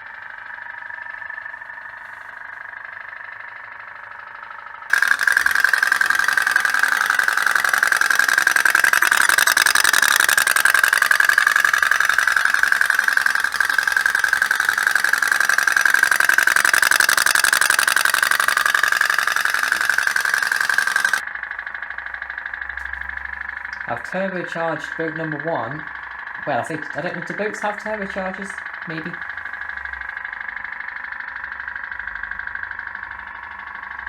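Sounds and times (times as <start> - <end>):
toy steam boat engine putter: 4.9 - 21.2, 26.5 - 29.4.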